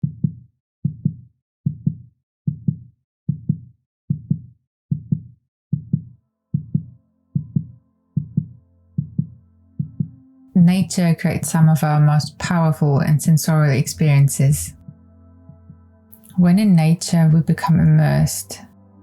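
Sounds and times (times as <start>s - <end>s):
heartbeat double thump: 0.0s - 10.2s
soft low music drone: 6.2s - 19.0s.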